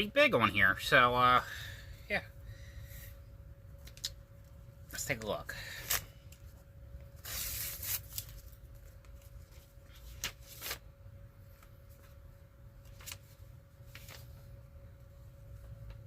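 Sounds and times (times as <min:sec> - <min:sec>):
paper envelope rustling: 0:07.2 - 0:12.2, 0:12.8 - 0:14.5.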